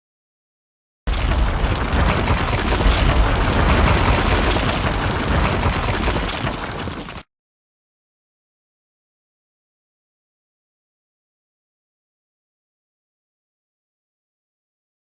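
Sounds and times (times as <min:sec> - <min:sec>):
heavy rumbling crash: 0:01.1 - 0:07.2.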